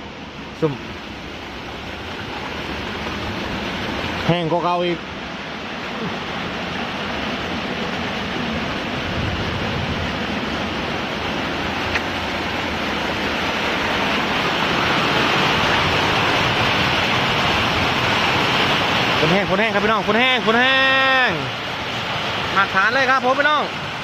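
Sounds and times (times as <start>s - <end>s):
heavy rain pouring: 0.0s - 24.0s.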